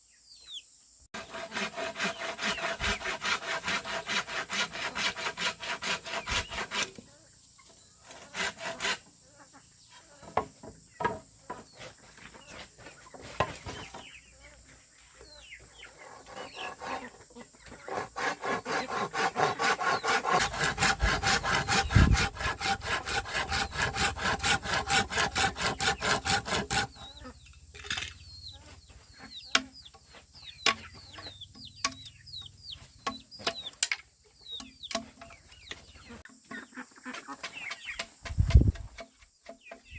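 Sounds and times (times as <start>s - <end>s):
hand saw cutting wood: 1.2s - 7.0s, 8.1s - 9.1s, 16.1s - 27.1s, 38.2s - 39.6s
chickens chirping: 11.7s - 20.4s, 26.9s - 38.8s.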